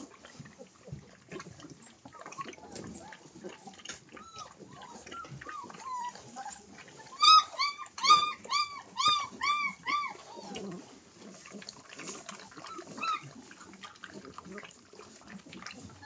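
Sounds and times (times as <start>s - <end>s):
dog whining: 2.6s - 10.8s, 12.6s - 13.3s
dog yelping: 2.7s - 10.6s, 12.6s - 13.3s.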